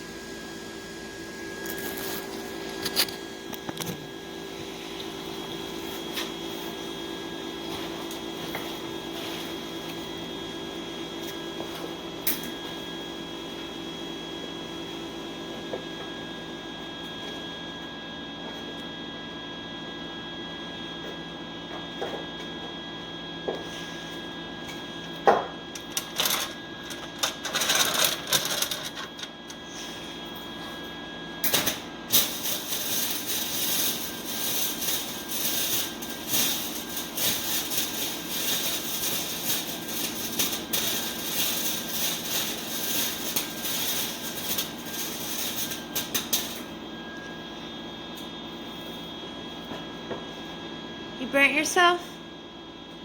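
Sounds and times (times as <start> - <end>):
welder arc crackling: 25.7 - 29.6, 31.5 - 46.8.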